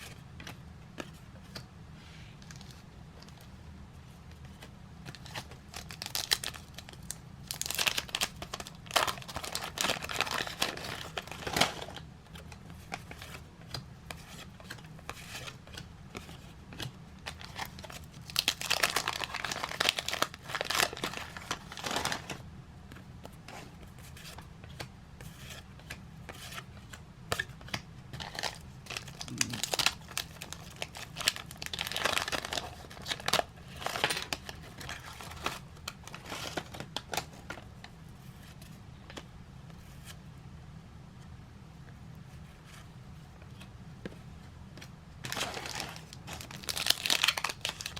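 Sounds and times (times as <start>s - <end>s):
wrappers crinkled and torn open: 5.1s - 12.0s, 17.3s - 22.4s, 28.2s - 37.3s, 45.2s - 47.9s.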